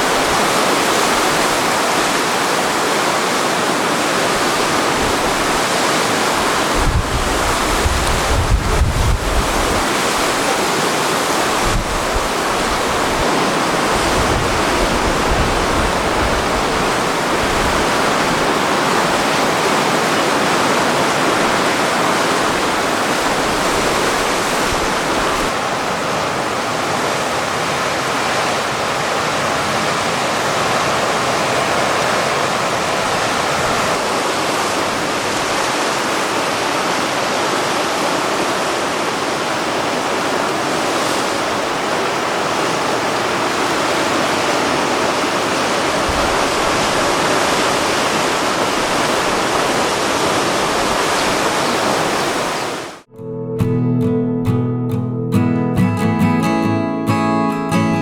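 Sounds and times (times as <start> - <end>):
waves breaking: 0.0 - 53.1
wind on microphone: 4.3 - 25.6, 40.5 - 52.9.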